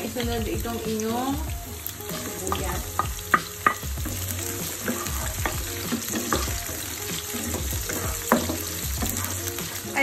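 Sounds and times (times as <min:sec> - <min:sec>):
vegetables sizzling in hot oil: 0:00.0 - 0:10.0
wooden spatula scraping a pan: 0:04.2 - 0:10.0.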